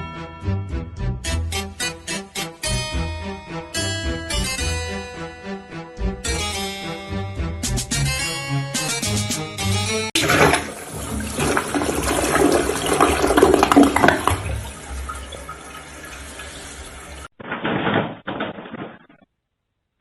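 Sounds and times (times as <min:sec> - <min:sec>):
rushing swirling water: 0:10.2 - 0:17.3.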